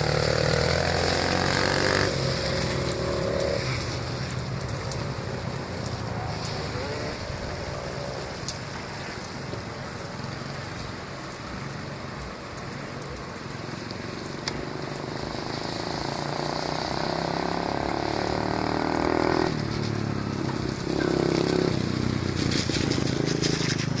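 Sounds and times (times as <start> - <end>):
dirt bike engine running: 14.6 - 24.0.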